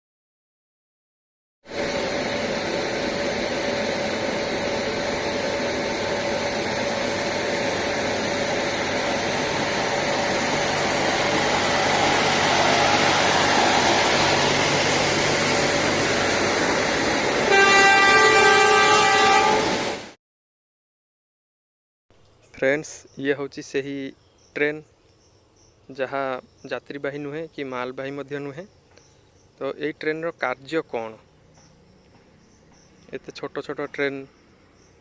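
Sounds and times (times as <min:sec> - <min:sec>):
train rumbling on track: 0:01.7 - 0:20.2
train horn: 0:17.4 - 0:20.1.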